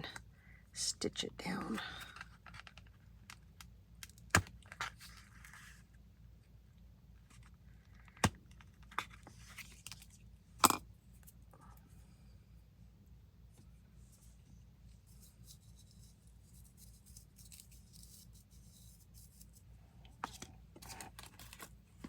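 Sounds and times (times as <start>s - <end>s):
rustling and scraping: 4.6s - 5.9s, 7.2s - 10.3s, 13.5s - 22.0s.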